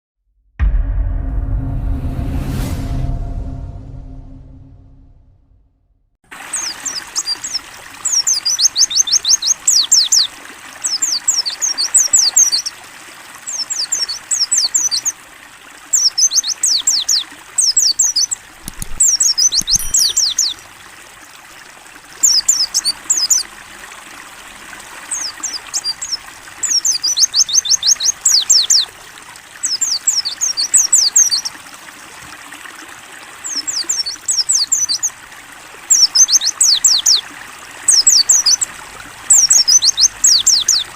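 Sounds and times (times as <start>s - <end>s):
trickling water: 6.2s - 40.9s
bird singing high downward notes: 18.1s - 20.6s, 39.3s - 40.9s.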